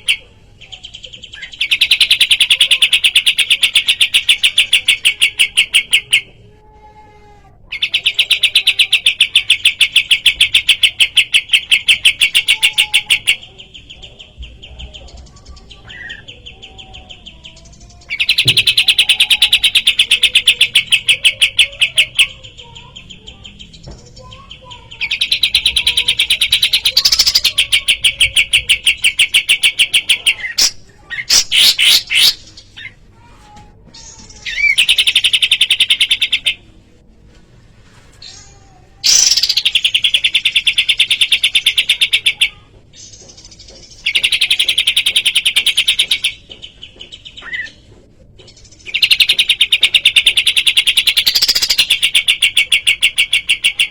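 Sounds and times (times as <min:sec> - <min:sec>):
songbird trilling: 0:39.1 - 0:42.6.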